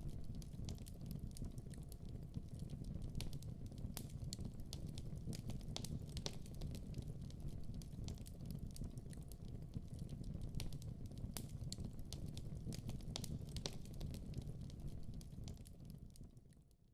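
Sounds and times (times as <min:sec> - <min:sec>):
wood fire popping and crackling: 0:00.0 - 0:16.7.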